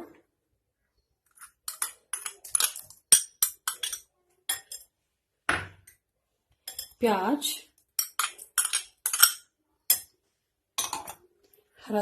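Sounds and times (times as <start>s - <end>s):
spoon clinking on mixing bowl: 1.6s - 4.9s, 6.6s - 7.0s, 8.0s - 10.2s.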